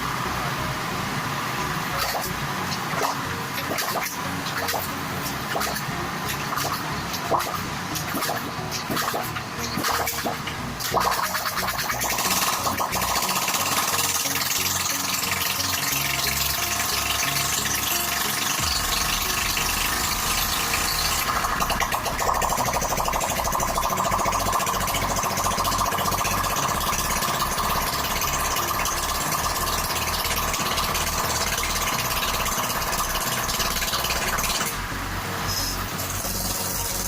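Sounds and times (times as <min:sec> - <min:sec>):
scooter engine running: 0:08.1 - 0:37.0.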